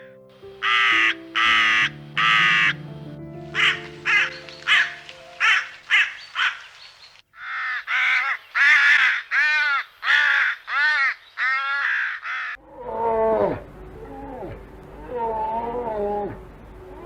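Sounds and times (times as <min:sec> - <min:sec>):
bird calling: 0:00.4 - 0:12.6.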